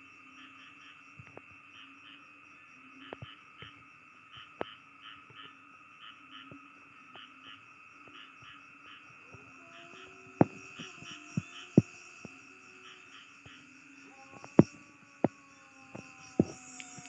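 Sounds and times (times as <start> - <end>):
frogs pulsing calls: 0.0 - 17.0
high insect drone: 0.0 - 17.0
sharp clicks: 16.0 - 17.0.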